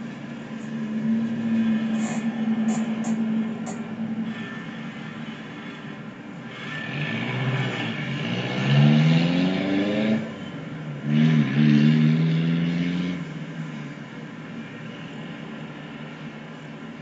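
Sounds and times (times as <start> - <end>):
train running: 0.0 - 8.4.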